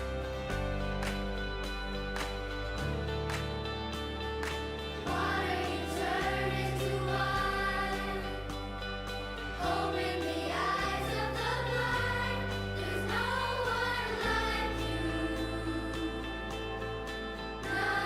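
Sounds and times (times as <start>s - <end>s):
bass accompaniment: 0.0s - 18.0s
children singing together: 5.0s - 8.8s, 9.6s - 18.0s.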